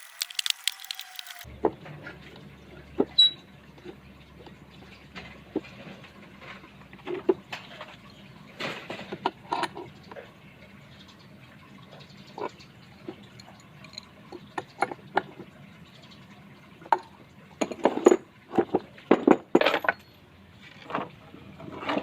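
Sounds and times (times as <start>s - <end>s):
hard objects clicking and clinking: 0.0s - 1.5s.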